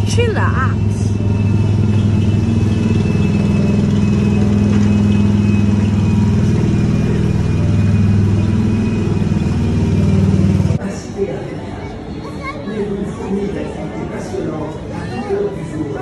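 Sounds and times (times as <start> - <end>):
small engine running: 0.0 - 10.8.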